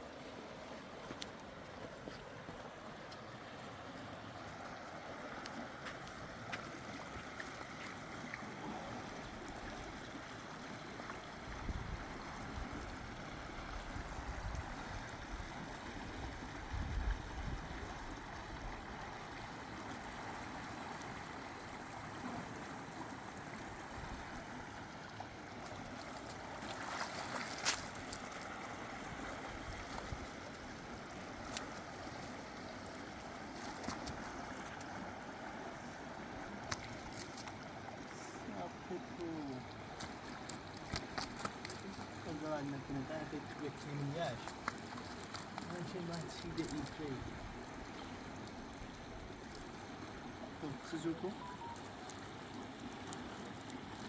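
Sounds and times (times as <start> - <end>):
flowing river water: 0.0 - 54.0
wind on microphone: 11.5 - 13.0, 13.6 - 18.9.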